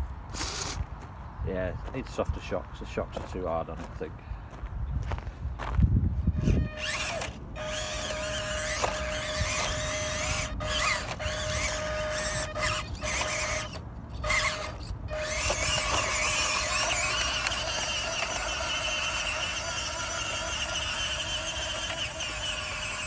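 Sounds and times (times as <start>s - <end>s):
rc car motor whining: 0.3s - 0.8s, 6.3s - 23.0s
high wavering squeal: 6.3s - 23.0s.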